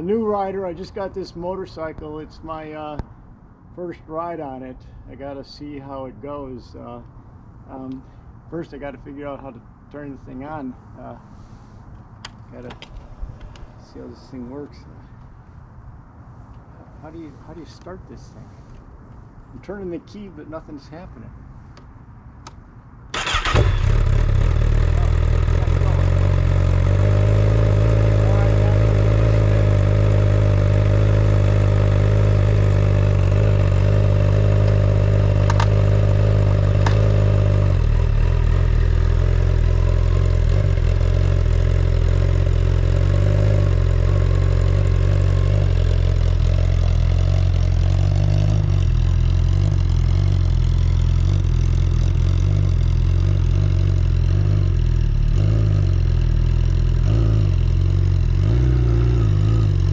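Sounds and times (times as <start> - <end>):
motorcycle engine running: 23.2 - 59.9.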